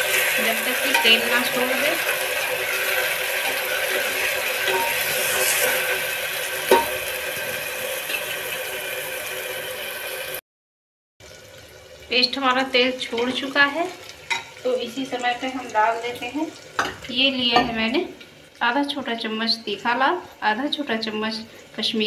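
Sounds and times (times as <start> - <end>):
paste sizzling in hot oil: 0.0 - 10.4
spatula scraping a pot: 2.1 - 6.0.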